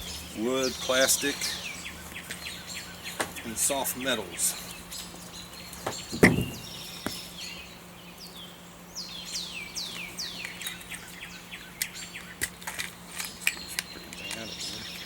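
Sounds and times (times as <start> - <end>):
songbird singing: 0.0 - 15.0
sharp handling clicks: 11.8 - 14.5.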